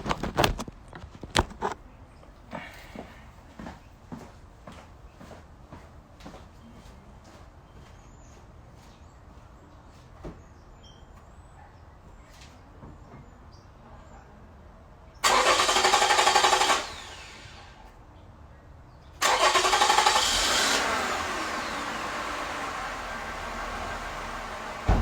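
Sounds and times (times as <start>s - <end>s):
car starter cranking: 15.2s - 17.6s, 19.2s - 25.0s
car engine idling: 19.2s - 25.0s.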